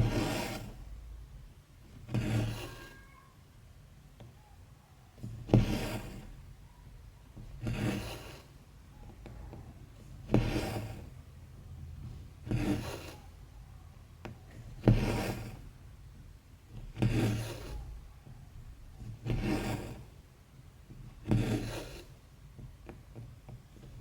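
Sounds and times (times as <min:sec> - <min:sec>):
thread rasping through fabric: 0:00.0 - 0:01.0, 0:05.2 - 0:06.4, 0:07.4 - 0:08.6, 0:09.2 - 0:11.2, 0:12.0 - 0:13.3, 0:14.3 - 0:15.7, 0:16.7 - 0:18.2, 0:18.9 - 0:20.2, 0:20.9 - 0:22.2.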